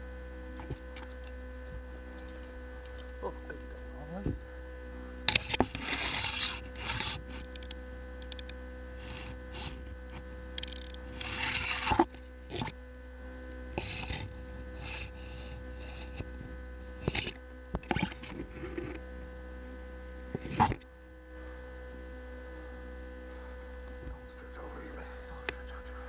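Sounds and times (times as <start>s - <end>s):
electrical hum: 0.0s - 26.0s
rustling and scraping: 5.3s - 7.7s, 9.0s - 12.8s, 13.8s - 19.0s.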